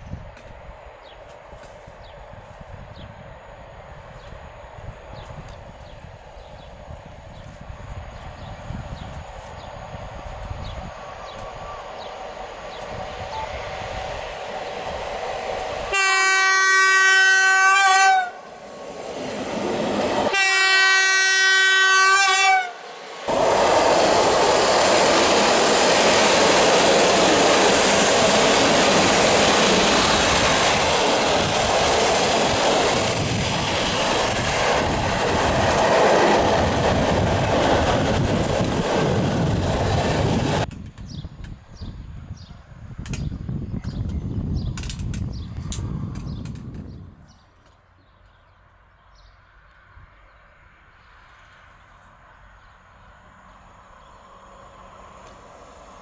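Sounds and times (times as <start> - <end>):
locomotive horn blasts: 15.9 - 18.5, 20.3 - 22.8.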